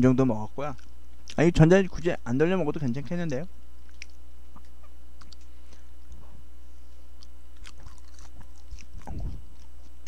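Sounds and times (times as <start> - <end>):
mouth chewing with wet clicks: 3.8 - 5.5, 7.2 - 10.0.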